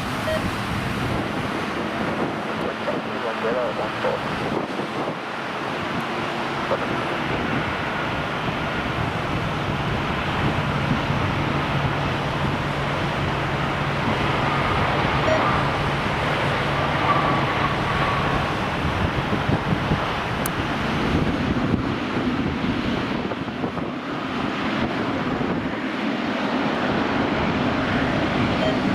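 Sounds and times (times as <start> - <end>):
jet engine rushing with whine: 0.0 - 28.9
wind buffeting microphone: 0.0 - 28.9.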